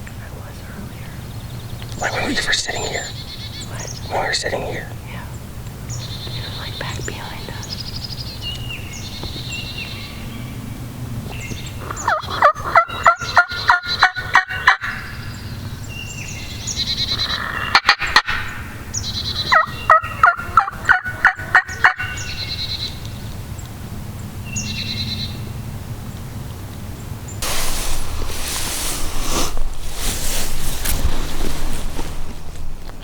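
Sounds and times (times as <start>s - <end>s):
songbirds chirping faintly: 0.0s - 33.0s
turkey gobbling: 11.8s - 15.2s, 17.1s - 22.5s.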